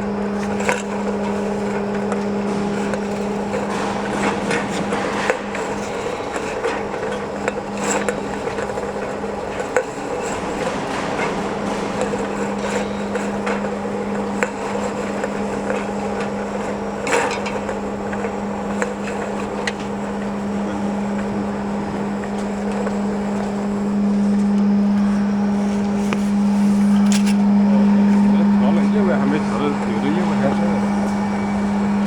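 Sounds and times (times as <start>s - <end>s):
washing machine humming: 0.0s - 32.0s
clicks and knocks: 0.3s - 23.6s.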